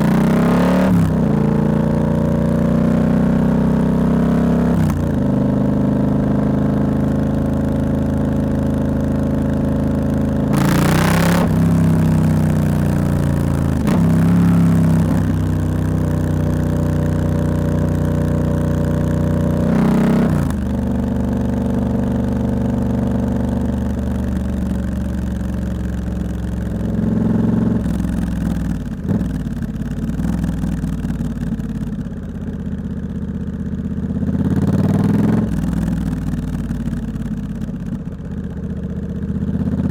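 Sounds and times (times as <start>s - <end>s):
motorcycle engine revving: 0.0s - 32.1s, 34.1s - 39.9s.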